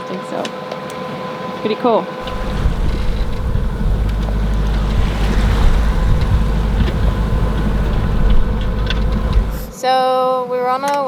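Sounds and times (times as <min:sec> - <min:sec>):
water washing around boat: 0:02.2 - 0:09.8
wind buffeting microphone: 0:02.2 - 0:09.8.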